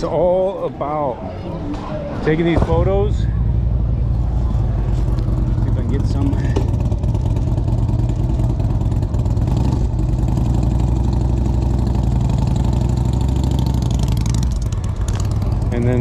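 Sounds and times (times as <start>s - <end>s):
motorcycle engine running: 3.3s - 16.0s.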